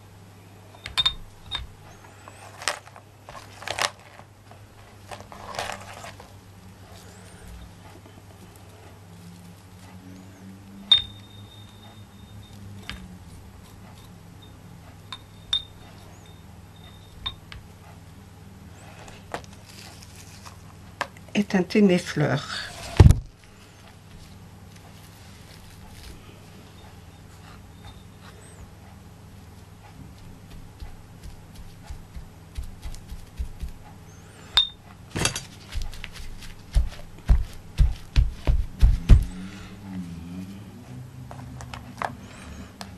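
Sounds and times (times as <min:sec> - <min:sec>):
low steady hum: 0:00.0 - 0:42.9
glass-like clink: 0:10.9 - 0:11.6
dull knocks: 0:36.8 - 0:39.4.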